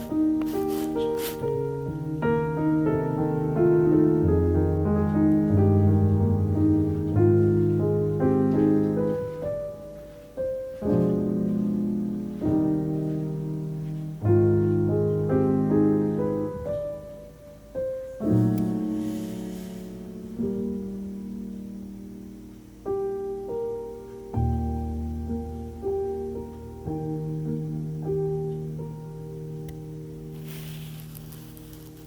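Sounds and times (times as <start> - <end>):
soft piano music: 0.0 - 32.0.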